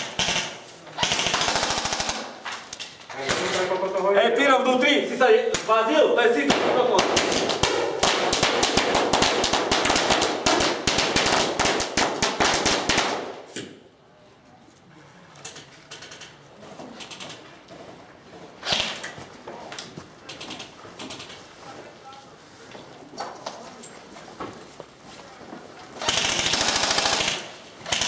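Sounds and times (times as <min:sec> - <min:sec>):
airsoft guns firing bursts: 0:00.0 - 0:02.4, 0:06.4 - 0:13.6, 0:26.0 - 0:28.0.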